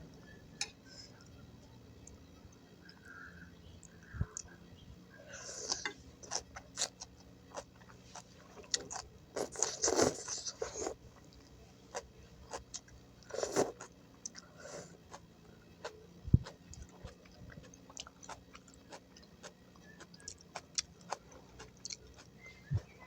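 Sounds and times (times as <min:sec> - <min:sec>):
person chewing and crunching vegetables: 0:05.3 - 0:23.0.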